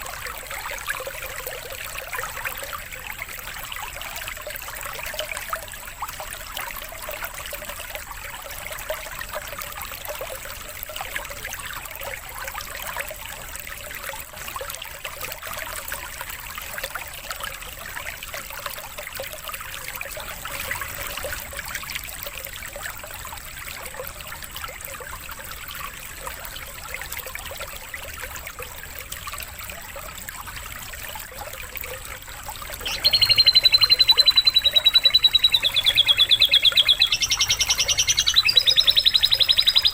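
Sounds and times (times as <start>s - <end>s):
water trickling: 0.0s - 39.9s
bird trilling song: 32.8s - 39.9s.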